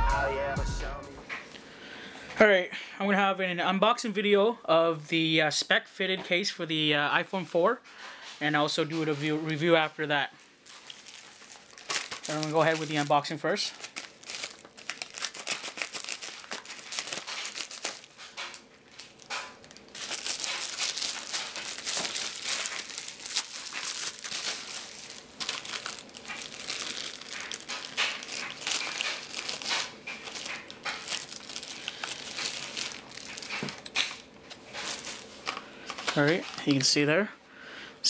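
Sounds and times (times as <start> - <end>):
plastic packaging crinkling: 8.7 - 37.1.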